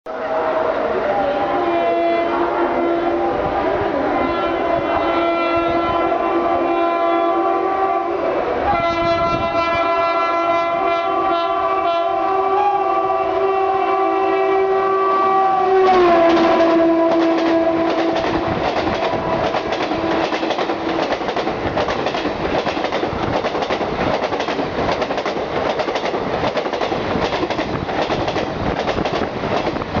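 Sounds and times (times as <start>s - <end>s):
locomotive horn: 0.1s - 21.4s
train wheels clickety-clack: 15.9s - 30.0s.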